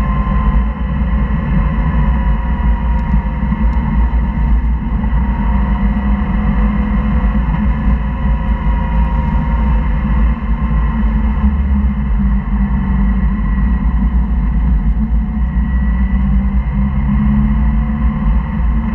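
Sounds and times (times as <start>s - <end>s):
car engine rumbling under load: 0.0s - 18.9s
road and wind noise: 0.0s - 18.9s.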